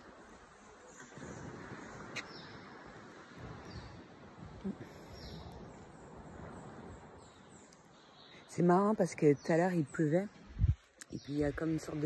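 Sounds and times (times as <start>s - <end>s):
faint bird chirps: 4.6s - 8.7s.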